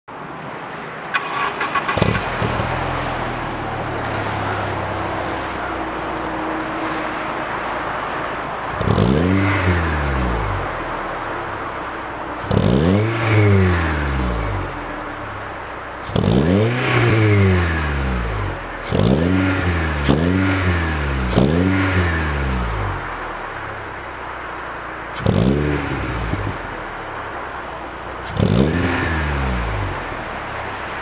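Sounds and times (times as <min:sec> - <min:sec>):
car engine cranking: 0:01.0 - 0:31.0
car engine idling: 0:01.0 - 0:31.0
car engine revving: 0:01.0 - 0:31.0.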